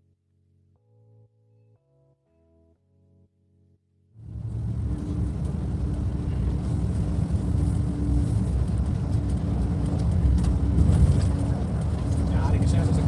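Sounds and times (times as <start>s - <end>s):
bus engine and road rumble: 4.2s - 13.0s.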